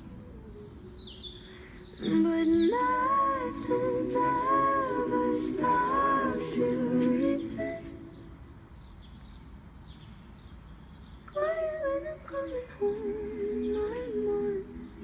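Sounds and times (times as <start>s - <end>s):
faint bird chirps: 0.0s - 3.6s.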